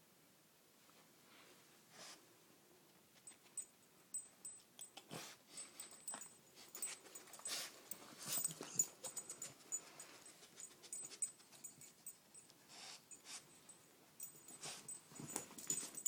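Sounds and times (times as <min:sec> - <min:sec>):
dog sniffing: 0:06.6 - 0:11.4, 0:12.7 - 0:13.5.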